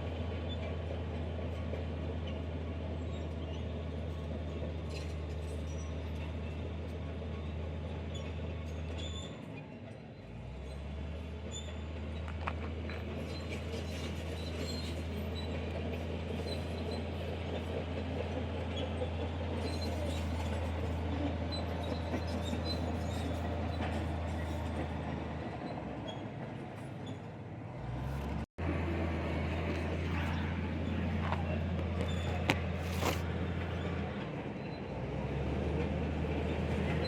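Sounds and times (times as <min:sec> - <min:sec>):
heavy diesel machinery droning: 0:00.0 - 0:37.0
squeaks and clicks: 0:10.6 - 0:27.4, 0:29.6 - 0:34.9.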